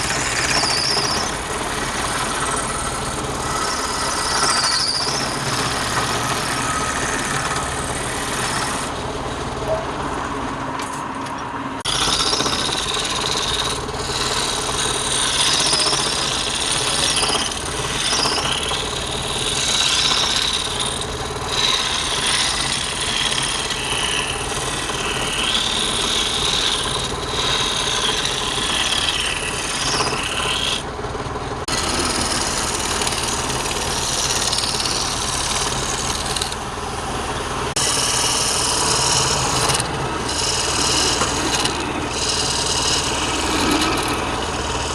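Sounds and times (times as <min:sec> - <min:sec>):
turning tool cutting wood: 0:00.0 - 0:09.2, 0:11.8 - 0:44.9
lathe motor hum: 0:00.0 - 0:10.6, 0:11.8 - 0:44.9.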